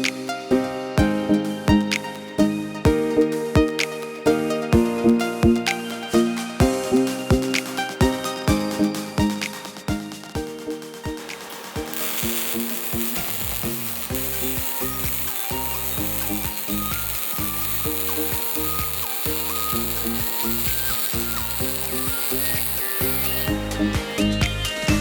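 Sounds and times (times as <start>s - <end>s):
background music: 0.0s - 25.0s
welding arc sizzling: 11.3s - 24.2s.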